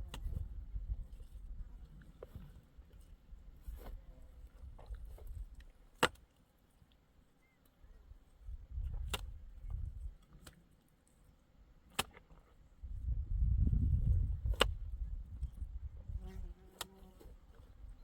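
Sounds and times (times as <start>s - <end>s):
faint low rumbling: 0.0s - 5.6s.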